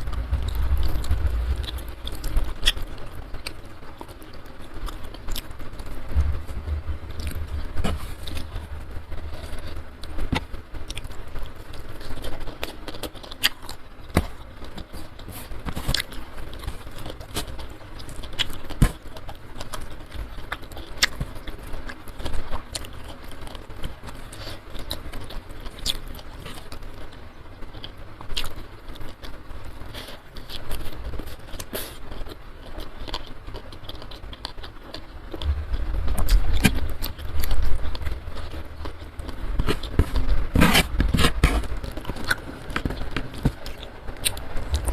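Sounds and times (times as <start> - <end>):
low rumble: 0.0 - 3.8, 5.2 - 11.0, 35.3 - 42.4
close chewing: 0.0 - 44.9
steady low hiss: 0.0 - 44.9.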